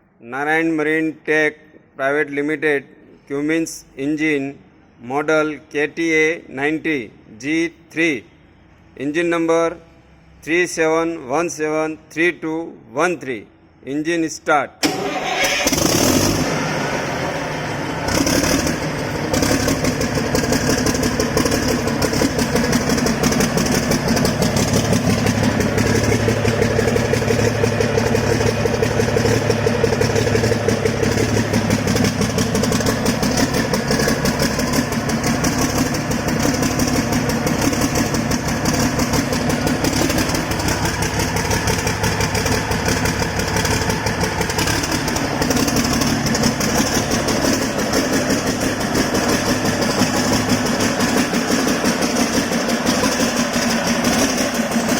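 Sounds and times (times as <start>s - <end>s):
diesel engine running: 14.8s - 54.9s.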